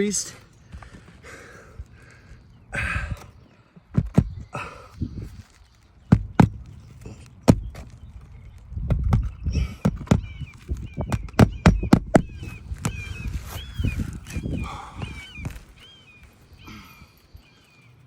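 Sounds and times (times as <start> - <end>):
small birds chirping: 0.0 - 18.0
knocks and taps on shingles: 3.8 - 4.6, 6.1 - 13.0.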